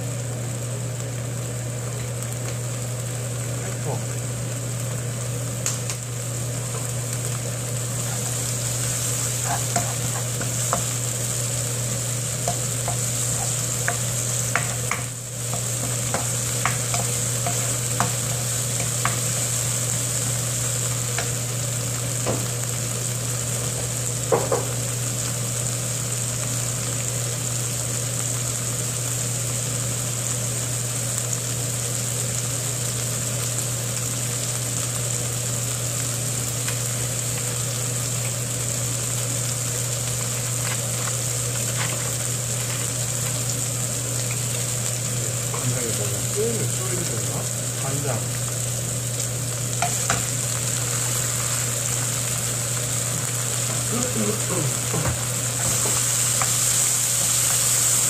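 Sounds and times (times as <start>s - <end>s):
steady low hum: 0.0s - 24.3s
kimchi sizzling in a wok: 0.0s - 58.0s
wooden spoon scraping a pan: 9.2s - 10.9s, 41.7s - 42.9s.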